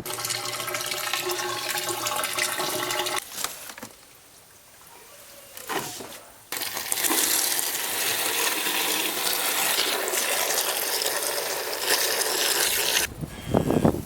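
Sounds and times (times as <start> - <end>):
running water splashing: 6.5 - 13.1.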